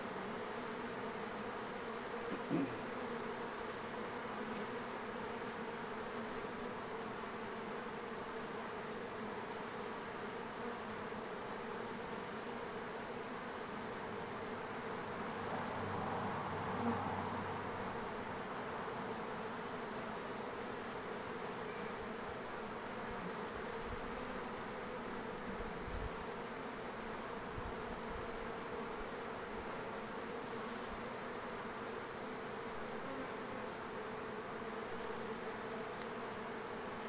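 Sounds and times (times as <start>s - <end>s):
bees buzzing: 0.0s - 37.0s.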